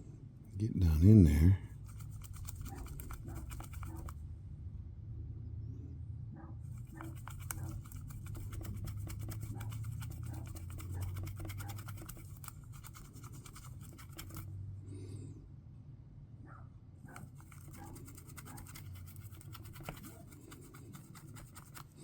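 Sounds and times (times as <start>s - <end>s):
dry scratching and scrubbing: 0.8s - 4.2s, 6.7s - 14.5s, 17.1s - 22.0s.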